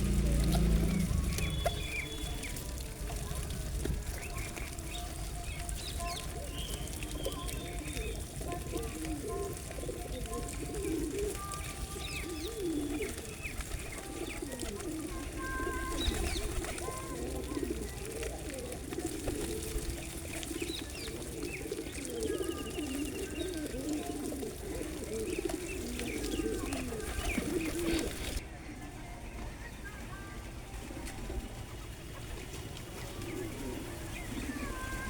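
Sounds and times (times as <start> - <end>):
pigeons cooing: 0.0 - 28.9, 30.2 - 35.0
small birds chirping: 0.0 - 35.0.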